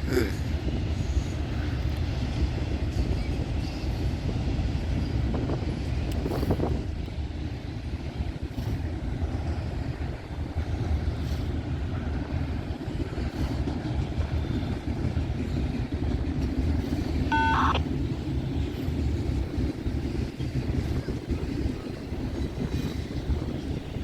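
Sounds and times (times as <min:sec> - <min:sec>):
freight train rumbling by: 0:00.0 - 0:24.0
high warbling beep: 0:17.3 - 0:17.8.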